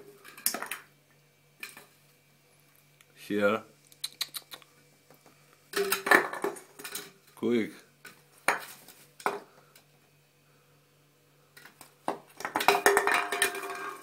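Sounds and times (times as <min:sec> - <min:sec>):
toy clattering on hard surface: 0:12.1 - 0:14.0.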